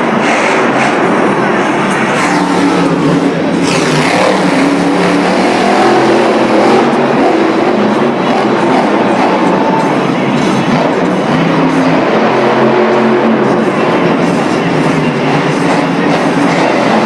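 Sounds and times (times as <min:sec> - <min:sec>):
monster truck engines revving: 0:00.0 - 0:17.0.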